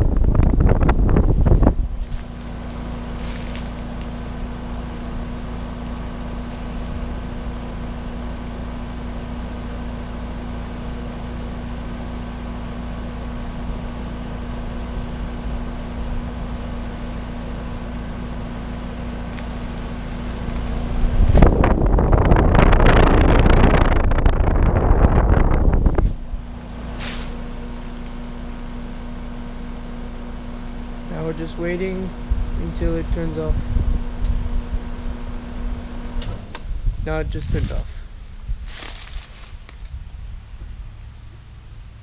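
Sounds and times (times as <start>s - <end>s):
wind buffeting microphone: 0.0s - 2.7s, 19.9s - 26.6s, 32.2s - 35.9s, 36.6s - 40.4s
air conditioner unit humming: 0.0s - 42.0s.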